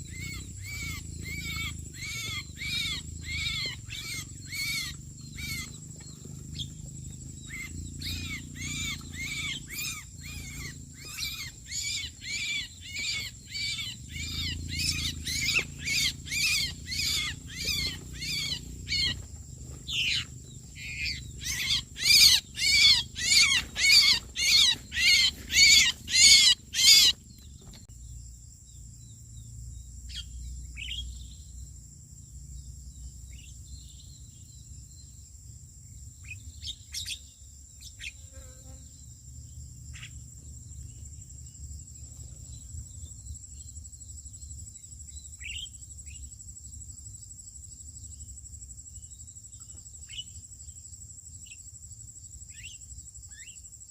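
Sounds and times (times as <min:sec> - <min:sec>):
faint bird chirps: 0:00.0 - 0:31.7
high insect whine: 0:00.0 - 0:53.9
harsh bird call: 0:19.9 - 0:27.2.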